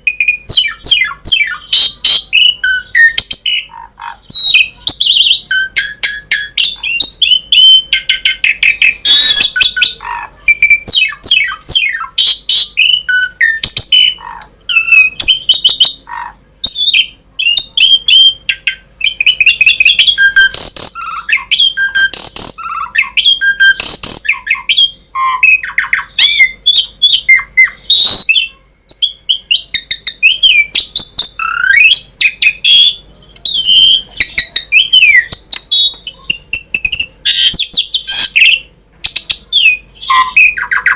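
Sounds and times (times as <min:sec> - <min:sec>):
starling singing: 0:00.0 - 0:40.9.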